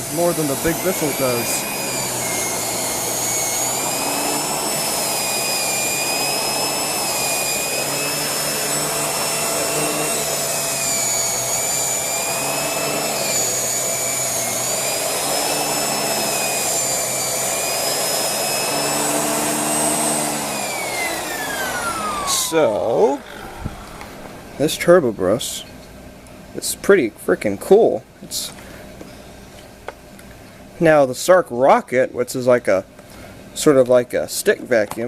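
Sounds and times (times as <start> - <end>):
vacuum cleaner running: 0.0 - 25.8
turbo brush whine: 0.0 - 26.6.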